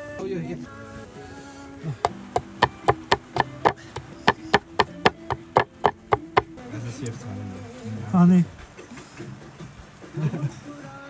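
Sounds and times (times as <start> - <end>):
knife chopping on a board: 2.1 - 6.6.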